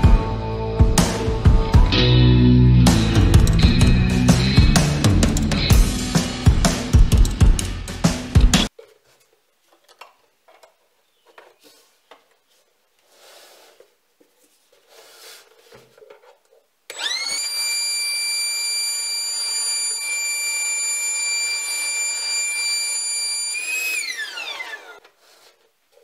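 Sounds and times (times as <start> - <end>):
music: 0.0 - 8.7
compressor motor whining: 16.9 - 25.0.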